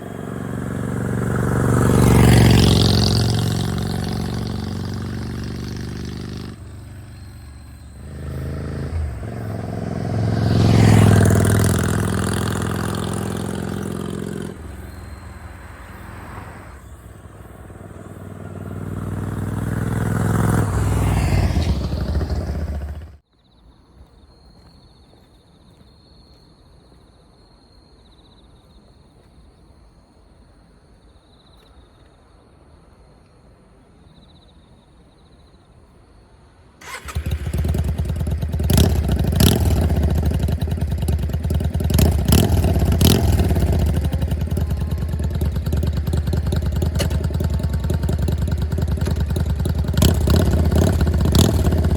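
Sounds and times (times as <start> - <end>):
motorcycle exhaust revving: 0.0 - 16.1, 16.9 - 23.2, 36.8 - 51.9.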